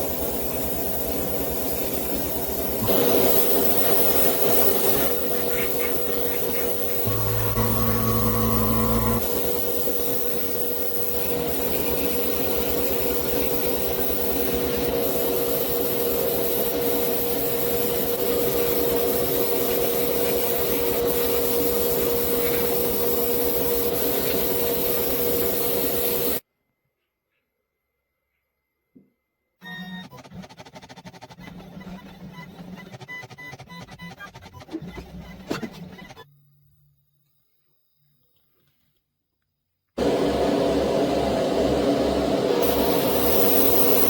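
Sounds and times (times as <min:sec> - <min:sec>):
power tool sanding: 0:02.8 - 0:26.4.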